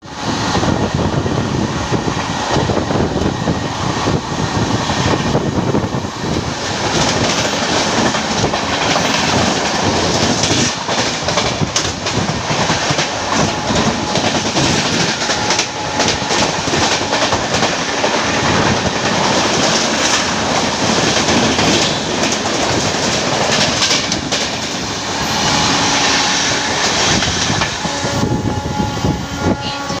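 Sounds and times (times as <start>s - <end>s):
rumble of train wheels on rail: 0.0s - 30.0s
clickety-clack over rail joints: 5.1s - 24.9s, 26.8s - 28.3s.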